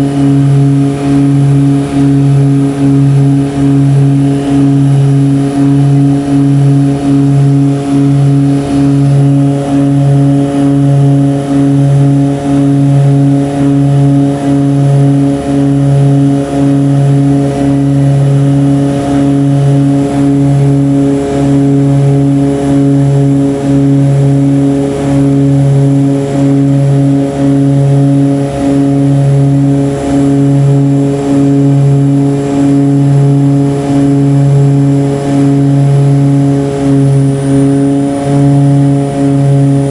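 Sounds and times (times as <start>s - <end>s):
propeller airplane engine drone: 0.0s - 39.9s.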